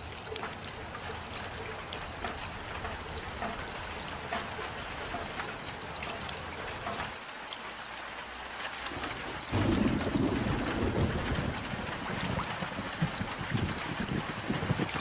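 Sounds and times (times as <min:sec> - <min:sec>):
rain hiss: 0:00.0 - 0:15.0
water trickling: 0:00.0 - 0:15.0.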